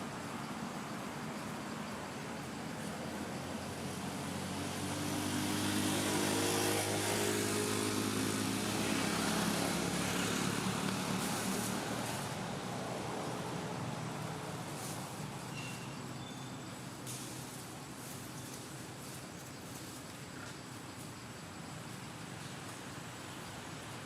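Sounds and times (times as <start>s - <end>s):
steady background noise: 0.0s - 24.0s
vehicle engine passing by: 2.7s - 15.5s.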